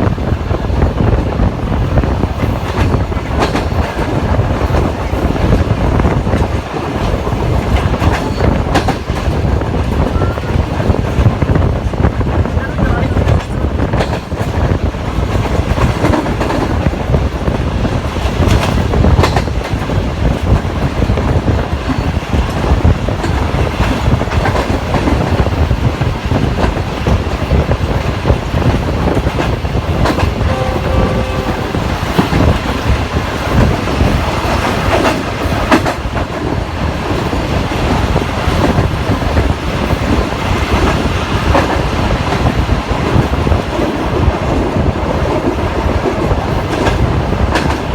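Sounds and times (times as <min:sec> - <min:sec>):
train rumbling on track: 0:00.0 - 0:47.9
wheels clicking over rail joints: 0:02.3 - 0:30.7.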